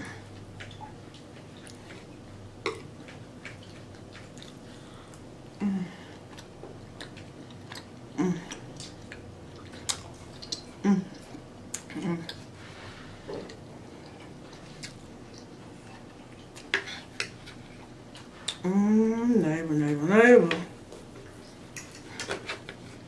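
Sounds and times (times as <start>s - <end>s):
person chewing: 0.0s - 18.7s
person murmuring: 8.2s - 8.5s.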